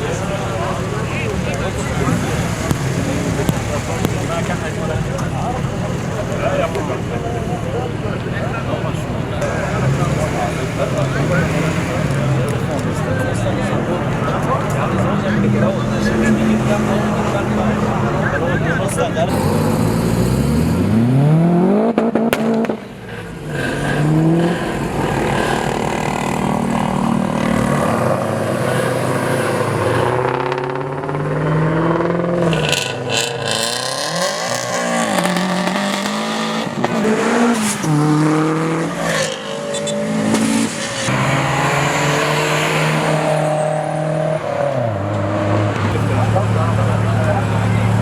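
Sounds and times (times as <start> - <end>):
car engine revving: 0.0 - 48.0
tyre squeal: 37.5 - 41.1.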